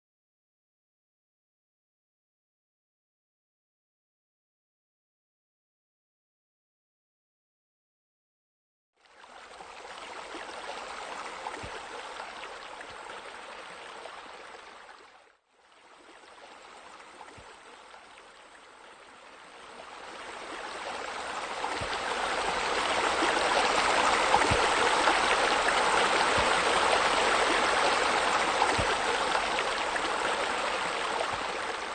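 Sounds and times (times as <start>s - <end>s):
waterfall splashing into pool: 20.8s - 31.9s.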